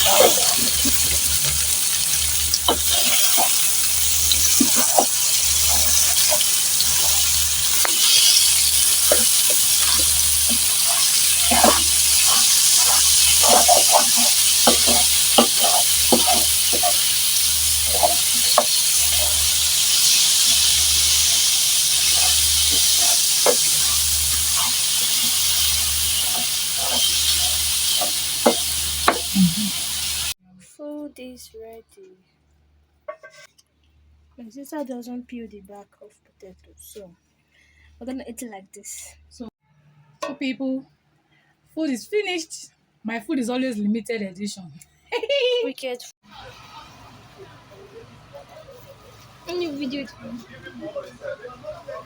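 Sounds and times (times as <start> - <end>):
food sizzling in a pan: 0.0 - 30.4, 46.2 - 52.0
utensil stirring in a pan: 0.0 - 30.4.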